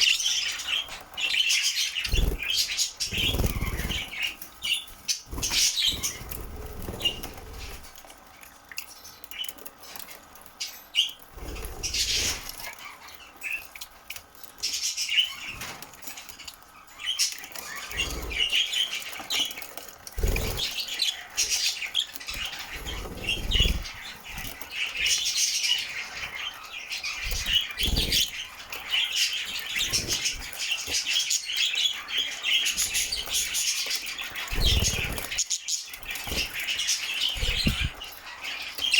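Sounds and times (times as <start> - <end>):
bird wings fluttering: 2.0 - 4.5, 5.1 - 8.0, 17.8 - 21.7, 22.4 - 24.6, 34.4 - 35.4, 36.0 - 38.1
budgie chirping: 37.3 - 38.0.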